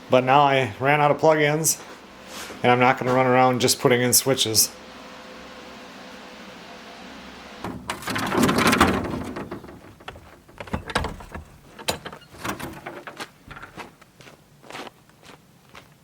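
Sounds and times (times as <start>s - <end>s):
knocks and clicks: 7.6s - 13.9s
door opening with rush of noise: 7.6s - 14.0s.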